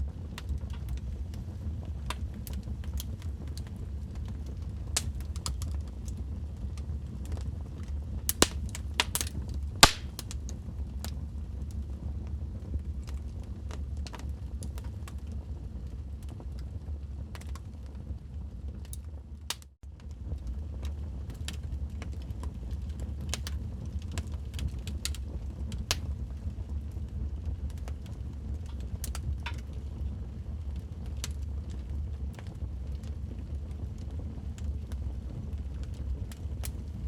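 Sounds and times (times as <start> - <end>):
wood fire crackling and popping: 0.0 - 37.0.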